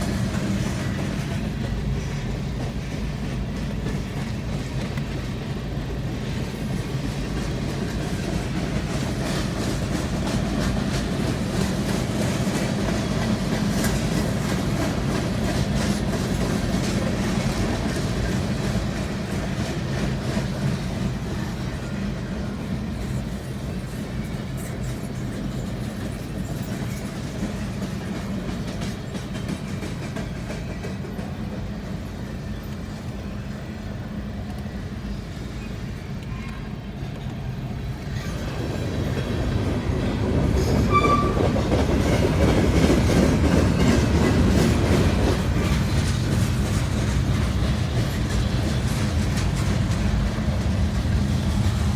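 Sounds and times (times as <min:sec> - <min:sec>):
freight train rumbling past: 0:00.0 - 0:51.9
wheels clacking over rail joints: 0:06.4 - 0:32.3, 0:38.0 - 0:51.9.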